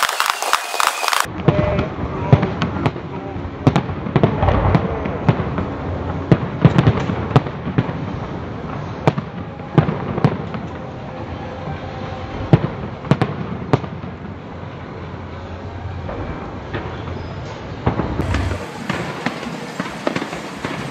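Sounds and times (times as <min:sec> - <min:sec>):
fireworks bursting with sharp bangs: 0:00.0 - 0:03.0, 0:03.6 - 0:10.7, 0:17.8 - 0:20.9
steady background hiss: 0:18.2 - 0:20.9.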